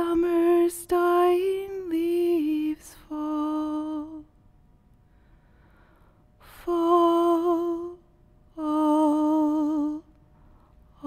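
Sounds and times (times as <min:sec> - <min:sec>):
short breath: 0:05.0 - 0:06.4.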